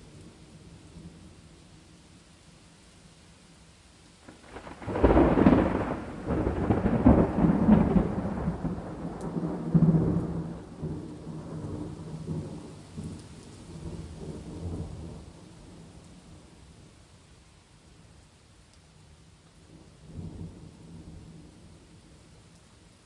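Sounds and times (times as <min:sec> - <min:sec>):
steady rain: 0:00.0 - 0:23.0
thunder rumbling: 0:04.2 - 0:13.1.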